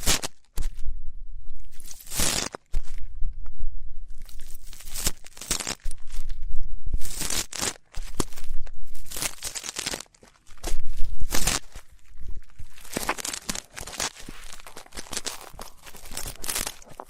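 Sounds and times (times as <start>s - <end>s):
ear pick scratching in ear: 1.8s - 2.9s, 4.2s - 6.4s, 7.0s - 17.0s.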